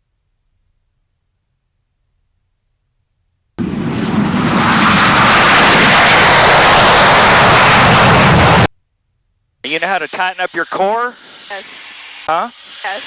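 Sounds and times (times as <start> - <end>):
jet engine running: 3.6 - 8.7, 9.7 - 13.0.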